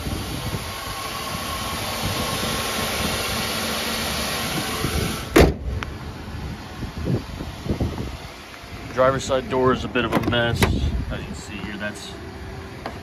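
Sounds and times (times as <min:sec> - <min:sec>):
car engine idling: 0:00.0 - 0:13.0
car hood slamming shut: 0:05.3 - 0:05.8, 0:10.1 - 0:10.9.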